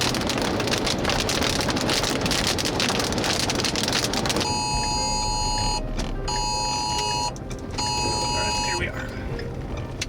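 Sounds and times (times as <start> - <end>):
heavy rain on a vehicle: 0.0 - 10.0
two-pitch electronic alert tone: 4.5 - 8.8.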